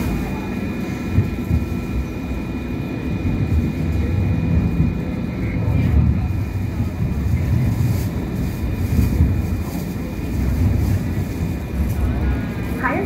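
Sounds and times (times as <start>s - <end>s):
faint steady whine: 0.0s - 13.0s
light rail wheels rumbling: 0.0s - 13.0s.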